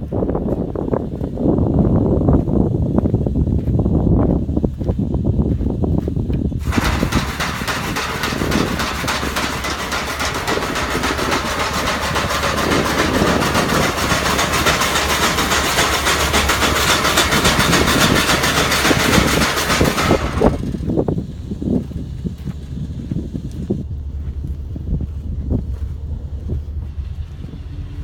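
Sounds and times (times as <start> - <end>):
truck engine rumbling: 0.0 - 28.0
hissing rapidly pulsing noise: 6.6 - 24.7.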